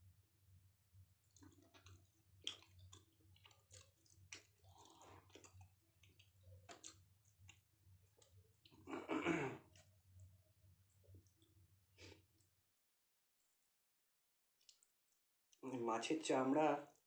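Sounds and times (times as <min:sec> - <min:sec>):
man chewing with wet clicks: 0:01.1 - 0:08.9, 0:09.7 - 0:10.3, 0:14.6 - 0:15.0.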